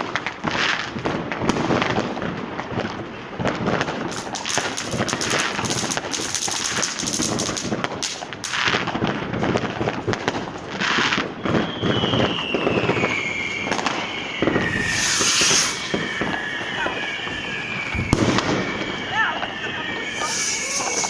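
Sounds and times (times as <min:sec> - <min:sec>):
firecracker bangs and crackling: 0:00.0 - 0:21.0
firework hiss: 0:03.8 - 0:09.0, 0:10.8 - 0:21.0
high falling firework whistle: 0:04.0 - 0:07.8, 0:11.0 - 0:21.0.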